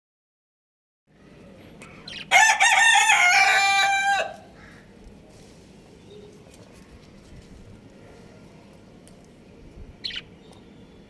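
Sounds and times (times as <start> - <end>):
rooster crowing: 2.3 - 4.6.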